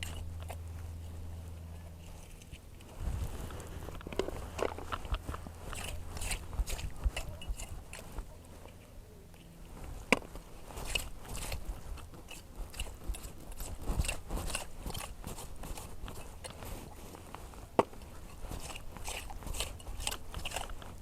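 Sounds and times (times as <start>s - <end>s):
scraping and crunching in wet sand: 10.3s - 21.0s.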